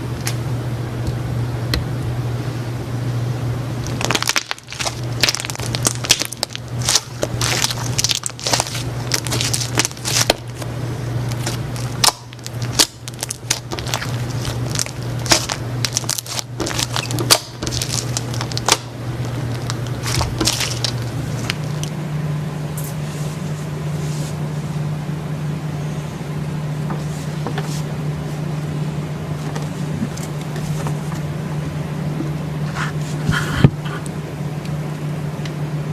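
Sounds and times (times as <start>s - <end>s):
steady low hum: 0.0s - 35.9s
slime squeezed crackling and popping: 3.8s - 10.6s, 11.3s - 21.9s.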